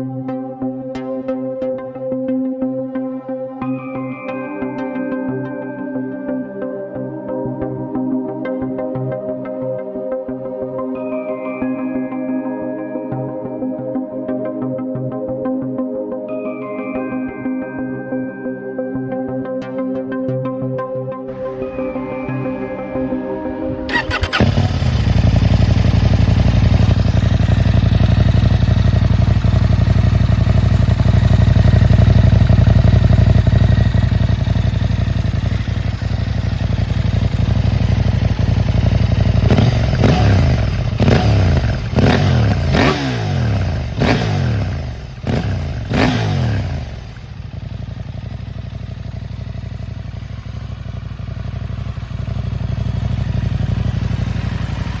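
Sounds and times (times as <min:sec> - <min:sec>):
motorcycle engine idling and revving: 0:21.3 - 0:55.0.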